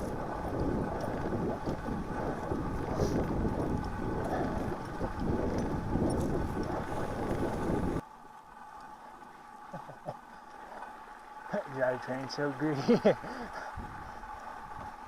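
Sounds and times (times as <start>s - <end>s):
wind buffeting microphone: 0.0s - 8.0s, 13.0s - 15.0s
mountain bike rushing: 0.0s - 15.0s.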